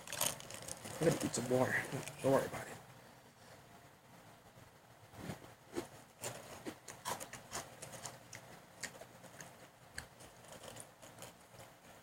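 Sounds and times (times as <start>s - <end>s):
potato sticks being chewed: 6.2s - 12.0s.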